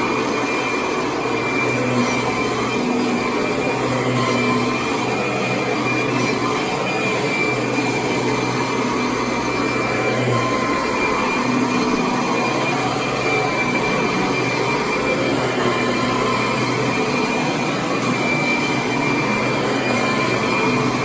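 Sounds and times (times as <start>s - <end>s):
vacuum cleaner running: 0.0s - 21.0s.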